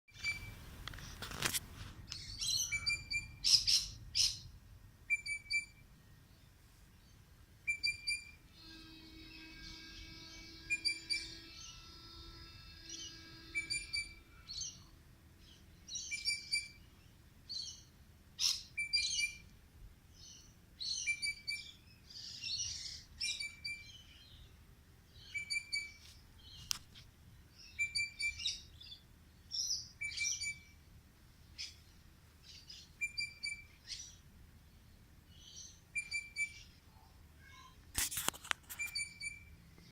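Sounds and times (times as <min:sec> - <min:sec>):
bird chirping: 0:00.2 - 0:01.2, 0:02.1 - 0:19.5, 0:20.1 - 0:26.8, 0:27.5 - 0:30.8, 0:31.5 - 0:37.8, 0:38.6 - 0:39.9
low hum: 0:06.0 - 0:18.4.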